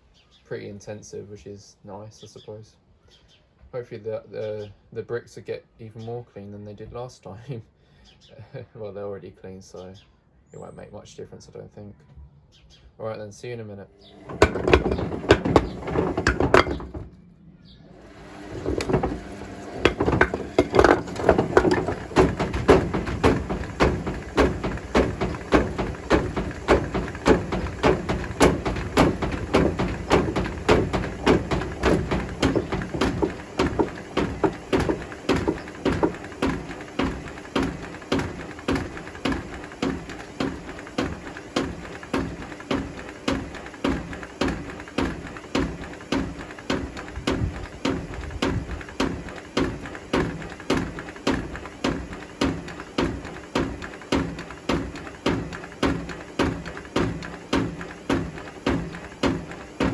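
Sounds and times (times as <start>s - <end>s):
bricks knocking in washing machine drum: 14.2s - 17.1s, 18.4s - 59.9s.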